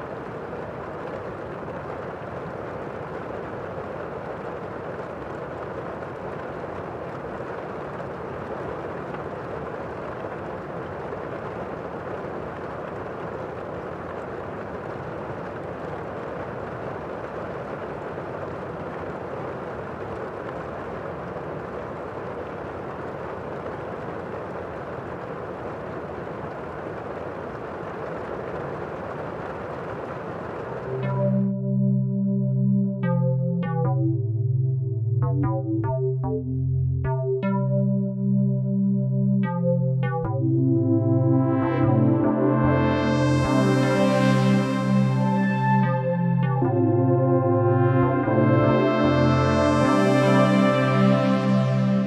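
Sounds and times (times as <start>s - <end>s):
steady rain: 0.0s - 31.4s, 41.2s - 52.0s
synthesizer chord: 30.8s - 52.0s.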